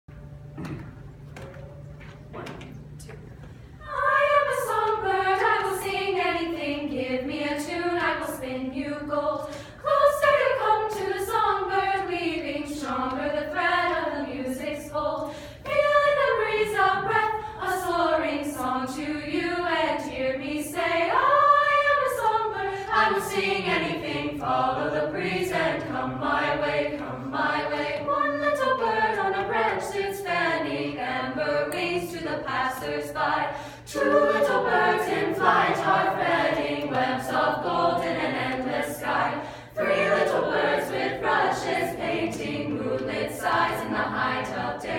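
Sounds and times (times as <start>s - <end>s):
a cappella choir singing: 3.7s - 44.9s.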